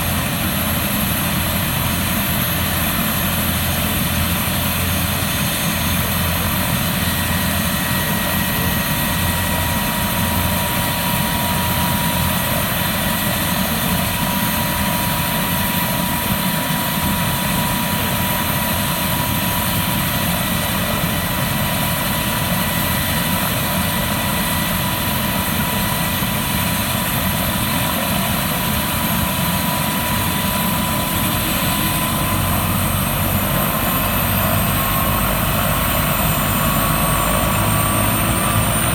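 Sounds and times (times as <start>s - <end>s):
helicopter engine and rotor: 0.0s - 38.9s
high whine: 0.0s - 38.9s.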